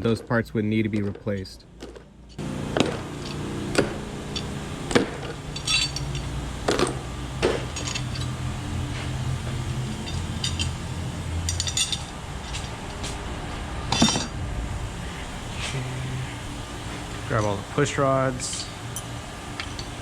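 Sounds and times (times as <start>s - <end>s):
metal parts and tools clinking: 2.3s - 13.3s, 13.9s - 14.4s, 18.3s - 20.0s.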